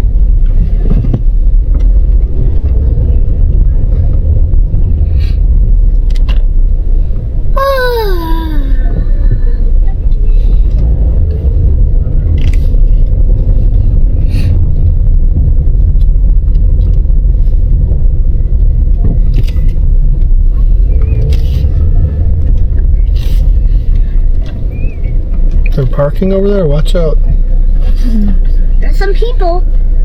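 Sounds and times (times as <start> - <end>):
car cabin road rumble: 0.0 - 30.0
brief higher noises: 7.5 - 9.0.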